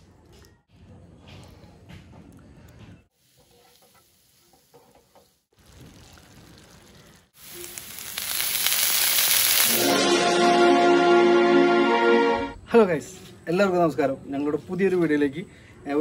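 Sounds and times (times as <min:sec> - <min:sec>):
food sizzling in hot oil: 0:03.2 - 0:10.4.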